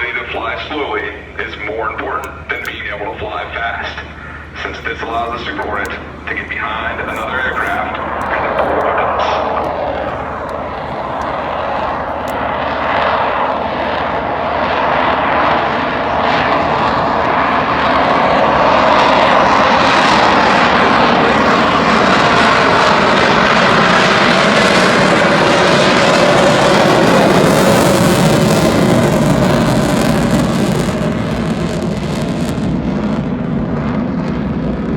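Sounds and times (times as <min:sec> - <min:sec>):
jet engines flying past: 0:00.0 - 0:34.9.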